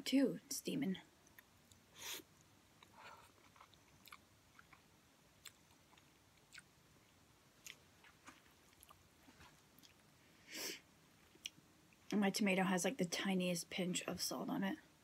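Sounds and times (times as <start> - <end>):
faint chewing of noodles: 1.2 - 10.3.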